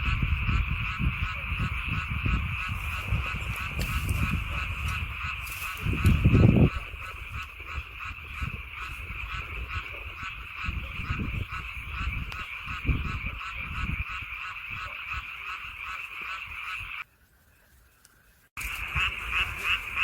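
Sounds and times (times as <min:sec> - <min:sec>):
chorus of frogs calling: 0:00.0 - 0:17.1, 0:18.0 - 0:20.0.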